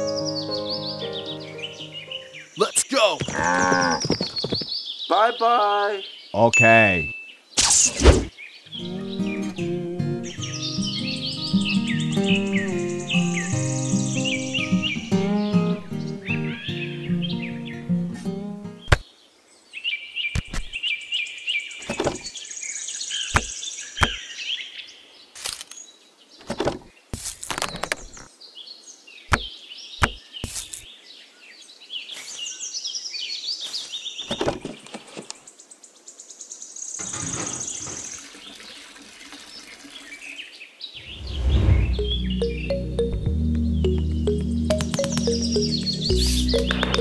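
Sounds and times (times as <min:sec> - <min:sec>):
music: 0:00.0 - 0:02.5, 0:08.8 - 0:18.9, 0:41.5 - 0:47.0
birds chirping: 0:00.0 - 0:25.0, 0:28.4 - 0:47.0
knocks and scrapes of small pieces: 0:26.4 - 0:28.3, 0:29.3 - 0:30.9
sand being dug: 0:27.2 - 0:27.6, 0:30.0 - 0:30.9, 0:46.1 - 0:47.0.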